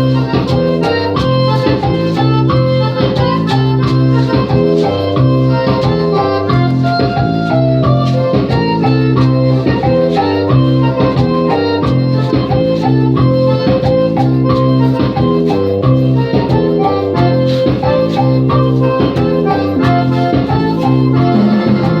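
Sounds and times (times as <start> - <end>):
electronic keyboard organ sound: 0.0 - 22.0
programmed drum beat: 16.3 - 22.0.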